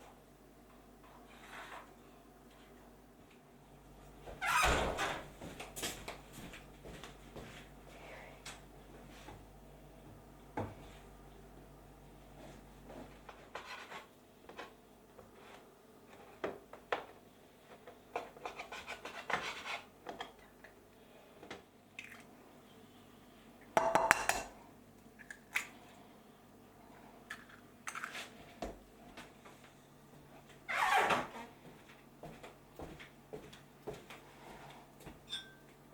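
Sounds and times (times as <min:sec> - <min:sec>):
dishes and cutlery clinking: 0:35.3 - 0:35.6.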